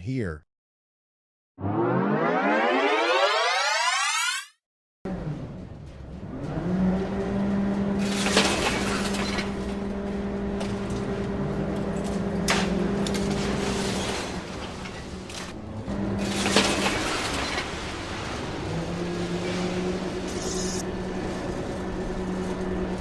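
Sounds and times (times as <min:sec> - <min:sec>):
low engine hum: 0:05.1 - 0:13.7, 0:17.7 - 0:23.0.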